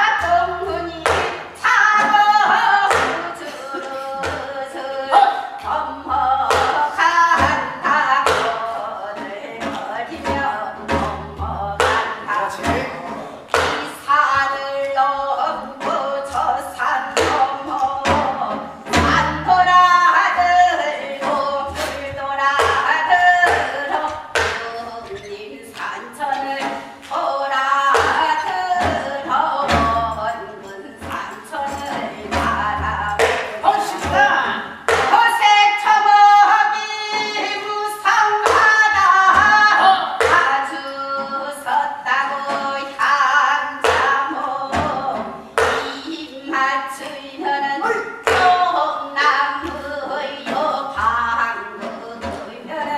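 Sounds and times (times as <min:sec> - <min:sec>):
folk singing with ornamented notes: 0:00.0 - 0:52.9
sharp drum strokes: 0:10.8 - 0:13.0, 0:18.8 - 0:20.6.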